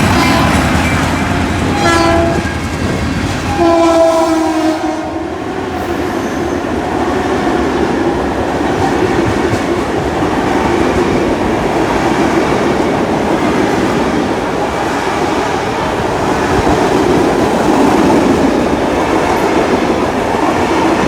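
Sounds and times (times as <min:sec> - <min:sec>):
train horn: 0:00.0 - 0:06.6
train passing with clickety-clack: 0:00.0 - 0:21.0.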